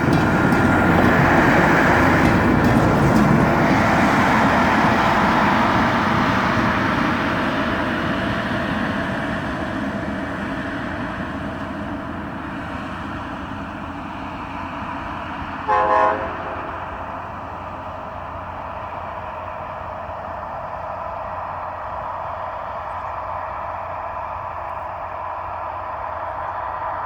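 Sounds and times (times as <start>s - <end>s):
train wheels rumbling on rails: 0.0s - 27.0s
train horn: 15.6s - 17.1s.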